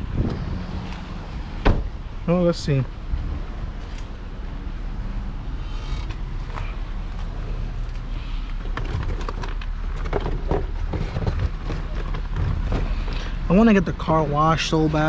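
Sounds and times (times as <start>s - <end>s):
low vehicle hum: 0.0s - 15.0s
knocks and creaks: 5.6s - 13.4s.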